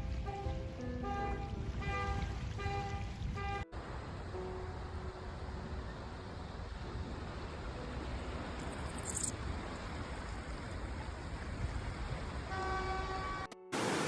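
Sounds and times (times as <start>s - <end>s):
vehicle horn: 0.2s - 3.7s, 12.5s - 13.7s.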